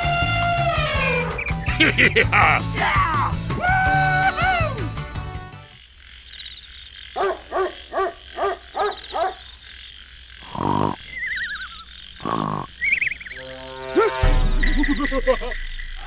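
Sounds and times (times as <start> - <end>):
frog croaking: 5.8 - 16.0
cartoon snore: 10.4 - 11.2, 12.2 - 12.9
faint high chirping: 10.5 - 16.0.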